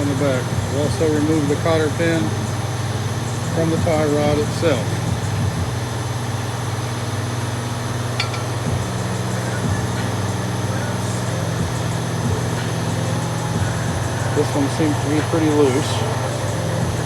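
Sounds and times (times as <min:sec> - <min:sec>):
low machine hum: 0:00.0 - 0:17.0
light metallic clicks of hand tools: 0:08.2 - 0:08.6.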